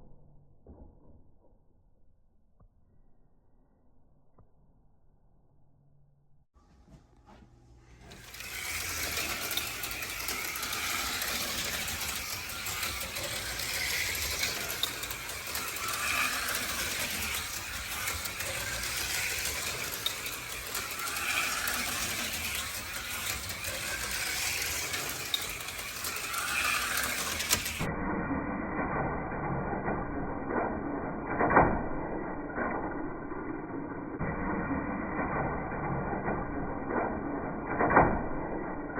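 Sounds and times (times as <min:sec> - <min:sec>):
slot cars whirring and rattling: 0:07.9 - 0:38.9.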